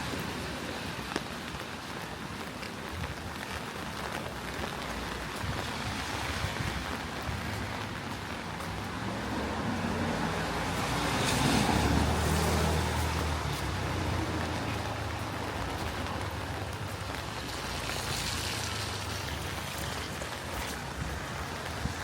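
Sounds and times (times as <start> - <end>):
rain hiss on wet street: 0.0 - 22.0
vehicle passing on wet road: 0.0 - 22.0.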